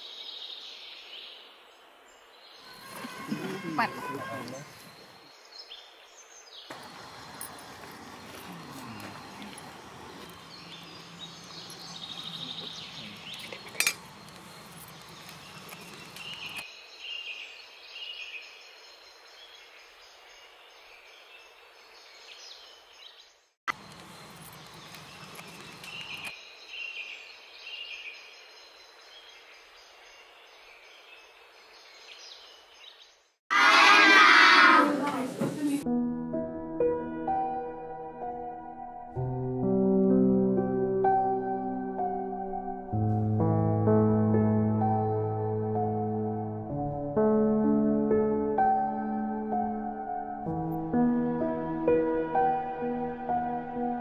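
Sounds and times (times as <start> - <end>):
outdoor background noise: 0.0 - 35.9
bird chirps: 2.5 - 18.5.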